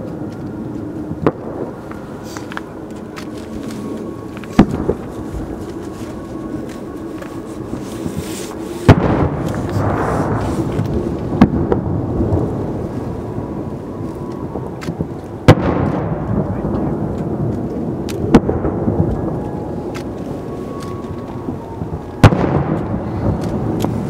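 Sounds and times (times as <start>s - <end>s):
distant firework booms: 8.9s - 13.6s, 14.5s - 19.8s, 21.8s - 24.0s
faint firework pops: 22.2s - 24.0s.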